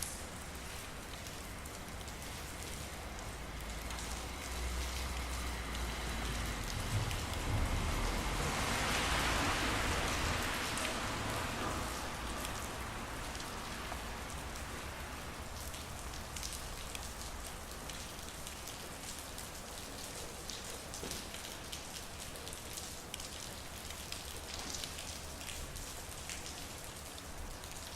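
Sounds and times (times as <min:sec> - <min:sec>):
raindrops ticking close by: 0:00.0 - 0:27.9
steady rain falling: 0:00.0 - 0:27.9.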